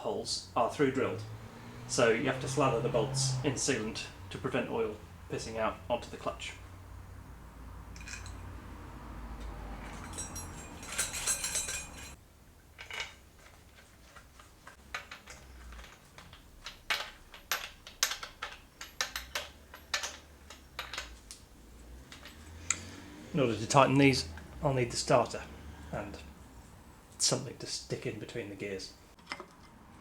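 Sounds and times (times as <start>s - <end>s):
metal parts and tools clinking: 7.8s - 12.2s, 12.8s - 23.2s.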